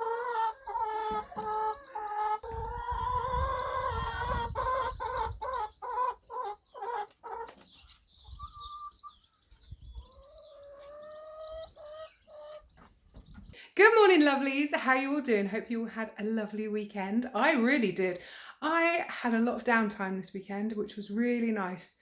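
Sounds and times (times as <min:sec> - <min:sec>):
hens clucking: 0:00.0 - 0:13.5
wild birds chirping: 0:00.0 - 0:13.7.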